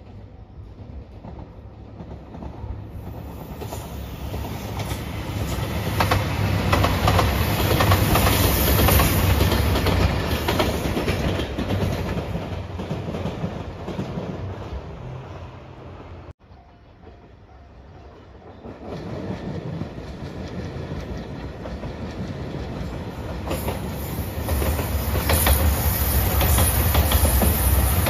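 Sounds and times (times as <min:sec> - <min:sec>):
diesel train passing: 0:00.0 - 0:28.0
wheels clicking over rail joints: 0:05.8 - 0:14.7.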